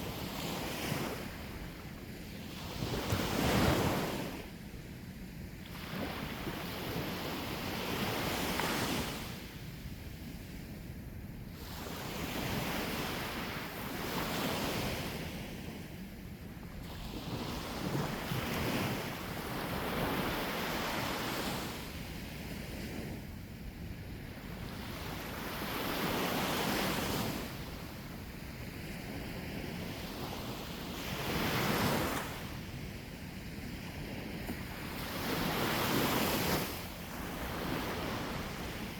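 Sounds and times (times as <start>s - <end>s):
wind rumbling on microphone: 0.0s - 38.9s
sea waves breaking on shore: 2.4s - 4.4s, 24.4s - 32.9s, 33.8s - 38.9s.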